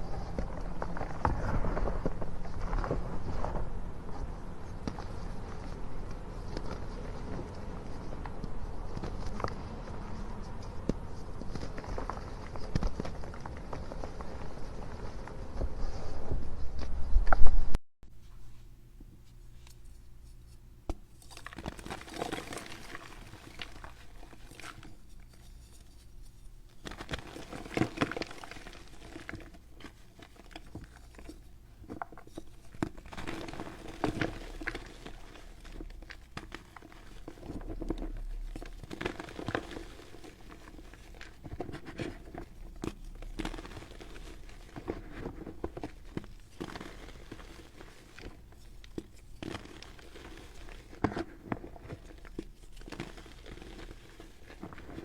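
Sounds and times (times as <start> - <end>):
baking soda crunching: 21.1 - 55.0.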